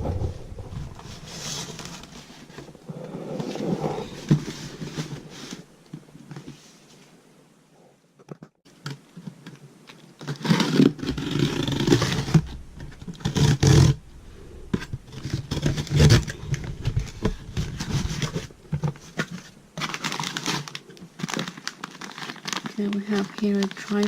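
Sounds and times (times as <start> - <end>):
low rumbling thumps: 0.0 - 5.8, 11.0 - 19.8
cardboard box scraping and tearing: 10.3 - 14.0.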